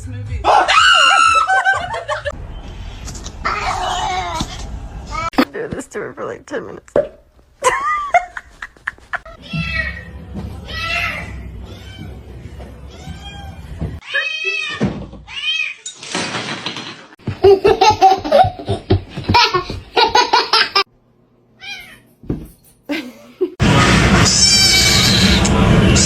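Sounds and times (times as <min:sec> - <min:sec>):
cats meowing: 0:10.7 - 0:12.2, 0:12.9 - 0:15.8, 0:21.6 - 0:22.1
sudden loud burst of noise: 0:23.6 - 0:26.0.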